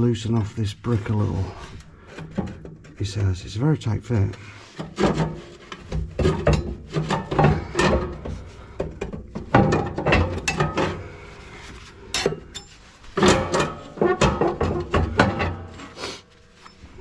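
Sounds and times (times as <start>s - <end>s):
knocks and clatters in stove firebox: 1.6s - 3.4s, 4.7s - 16.0s.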